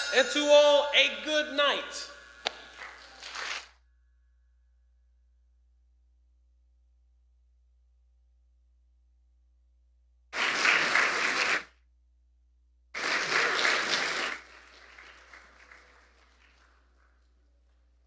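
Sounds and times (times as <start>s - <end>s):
congregation applauding: 10.4s - 11.7s, 13.0s - 18.0s.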